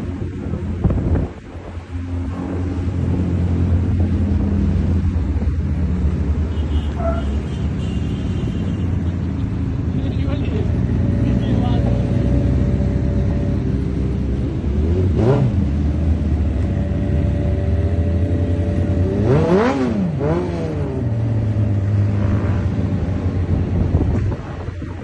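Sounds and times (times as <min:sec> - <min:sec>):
motorcycle engine revving: 0:10.4 - 0:24.5.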